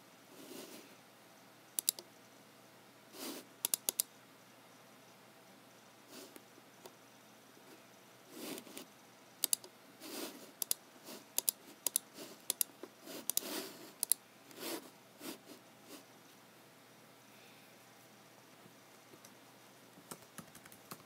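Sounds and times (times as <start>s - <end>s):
computer mouse clicking: 1.8s - 2.1s, 3.6s - 4.1s, 8.6s - 9.7s, 10.6s - 14.2s, 20.1s - 21.0s
mouse sliding: 8.3s - 16.1s.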